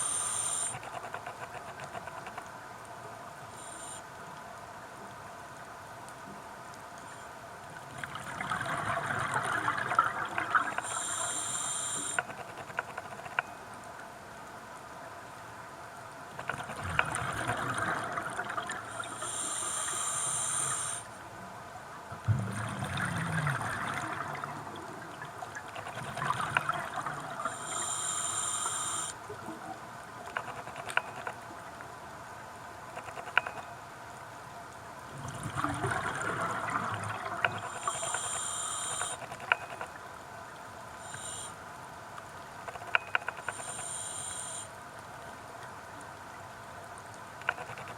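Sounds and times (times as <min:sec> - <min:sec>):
regulator inhalation hiss: 0:00.0 - 0:00.8, 0:10.8 - 0:12.2, 0:19.0 - 0:21.1, 0:27.5 - 0:29.2, 0:37.7 - 0:39.2, 0:41.0 - 0:41.6, 0:43.5 - 0:44.7
bubbling exhalation underwater: 0:22.4 - 0:24.7, 0:35.2 - 0:37.6.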